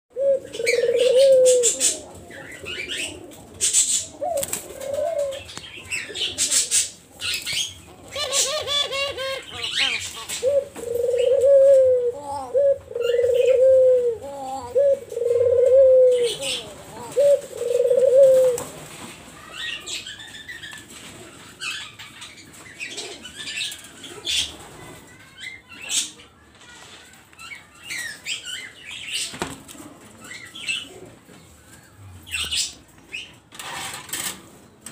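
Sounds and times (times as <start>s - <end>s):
doves cooing: 0.1s - 18.9s, 19.6s - 25.0s, 29.7s - 31.3s.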